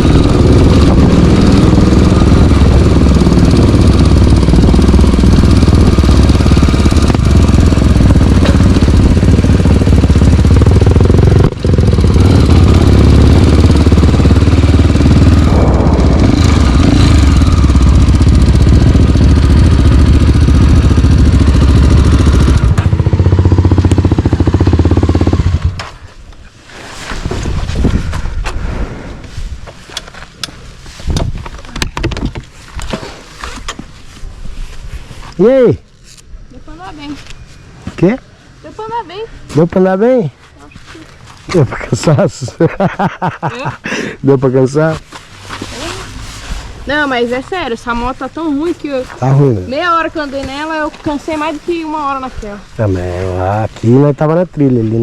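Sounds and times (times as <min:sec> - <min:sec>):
motorcycle engine running: 0:00.0 - 0:26.2, 0:45.5 - 0:55.0.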